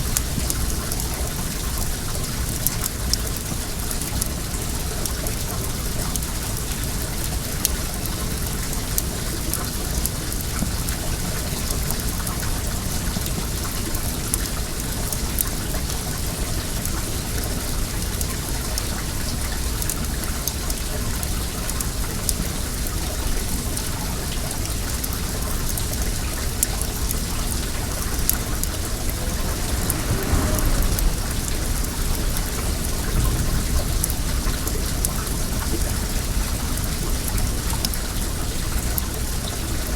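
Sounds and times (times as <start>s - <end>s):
water running: 26.6s - 33.9s
bonfire crackling: 26.6s - 35.2s.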